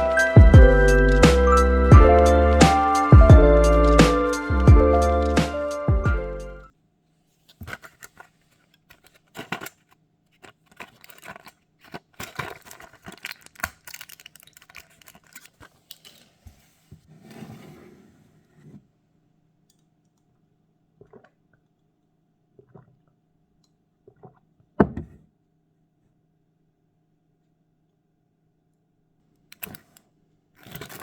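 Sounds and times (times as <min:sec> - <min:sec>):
rustling: 0:07.2 - 0:17.8, 0:30.6 - 0:31.0
handling clicks and crinkles: 0:07.4 - 0:16.6, 0:29.4 - 0:31.0.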